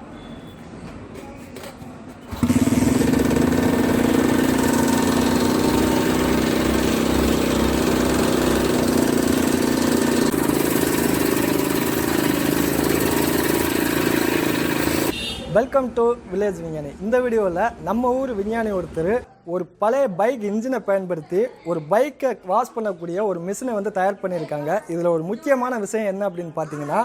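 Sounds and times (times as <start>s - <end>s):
motorcycle engine running: 2.2s - 15.1s.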